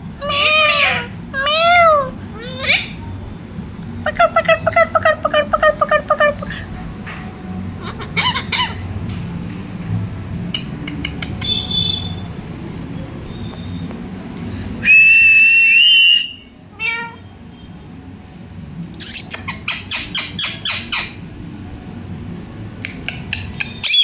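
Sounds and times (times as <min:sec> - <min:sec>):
parrot falling call: 0:00.2 - 0:02.9
parrot chirps: 0:00.2 - 0:03.0, 0:07.8 - 0:08.9, 0:19.0 - 0:21.2, 0:22.8 - 0:24.0
parrot whistle: 0:14.8 - 0:17.1, 0:23.3 - 0:24.0.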